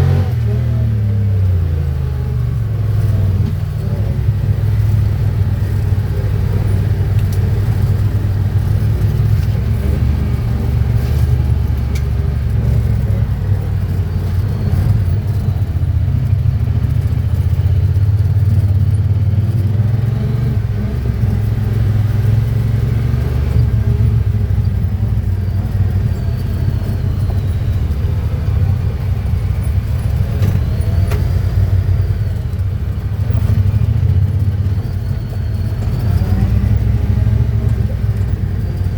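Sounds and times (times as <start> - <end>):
vehicle engine low drone: 0.0 - 38.9.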